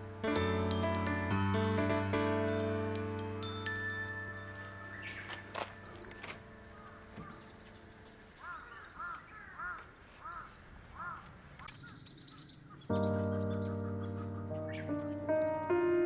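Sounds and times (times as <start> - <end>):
background music: 0.0 - 8.0, 13.0 - 16.0
small birds chirping: 4.3 - 16.0
crow cawing: 6.7 - 12.0.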